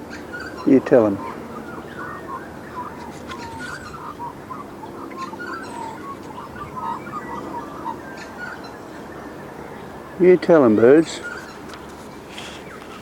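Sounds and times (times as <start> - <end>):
magpies warbling: 0.0 - 13.0.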